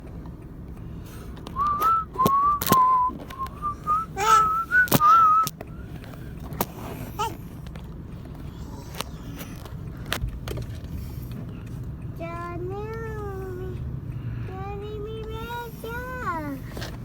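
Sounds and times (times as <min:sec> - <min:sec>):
person whistling a tune: 0:01.6 - 0:05.9
sharp clicks and knocks: 0:07.6 - 0:13.1.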